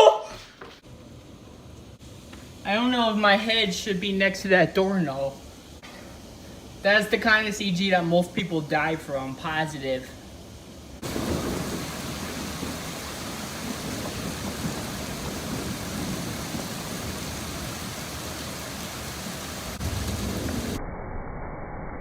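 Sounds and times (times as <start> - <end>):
heavy rain hissing: 0.8 - 20.8
sharp thunder crack: 11.0 - 18.4, 19.7 - 20.8
rolling thunder: 11.0 - 20.8.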